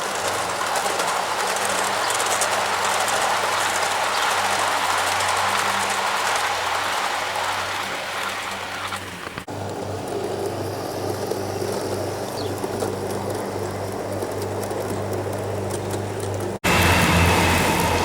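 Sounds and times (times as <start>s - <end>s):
model locomotive motor hum: 0.0s - 18.0s
wheels rattling on rail: 0.0s - 18.0s.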